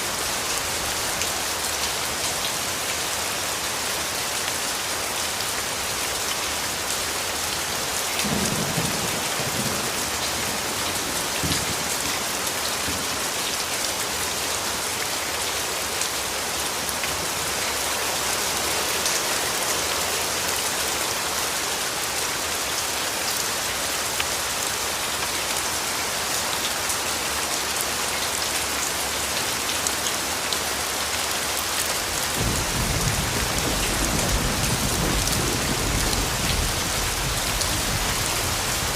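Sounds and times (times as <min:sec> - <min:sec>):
steady rain falling: 0:00.0 - 0:38.9
low rumbles of thunder: 0:32.4 - 0:38.9.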